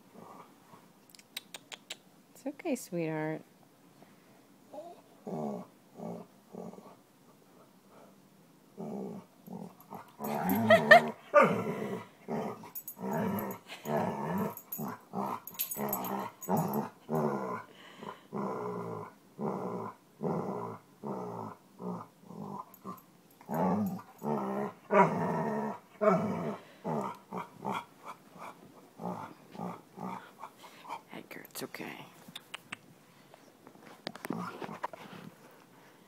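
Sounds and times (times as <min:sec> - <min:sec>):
dog growling: 0:04.8 - 0:07.0, 0:08.8 - 0:31.0.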